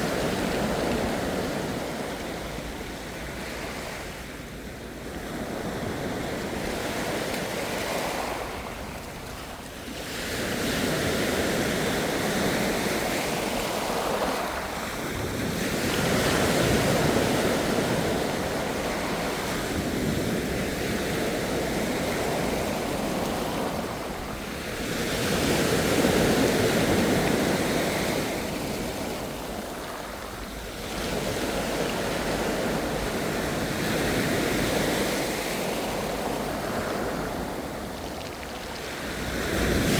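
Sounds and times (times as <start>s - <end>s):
ocean waves breaking: 0.0s - 39.9s
wind on microphone: 0.0s - 39.9s.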